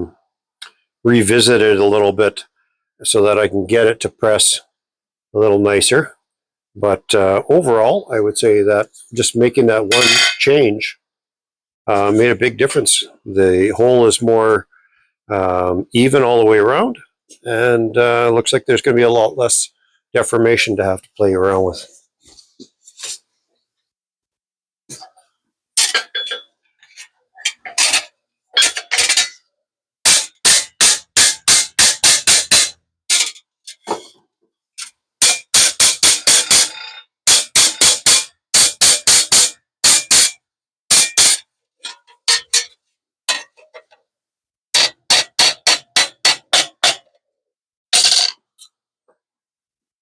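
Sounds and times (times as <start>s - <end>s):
metallic hammer strikes: 35.2s - 41.4s, 44.8s - 47.1s.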